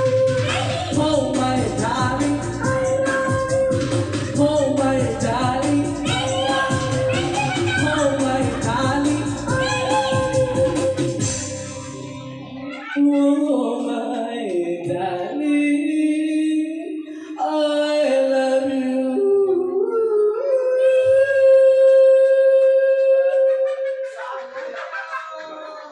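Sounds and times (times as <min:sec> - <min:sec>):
backing music: 0:00.0 - 0:15.4
person singing: 0:00.0 - 0:24.7.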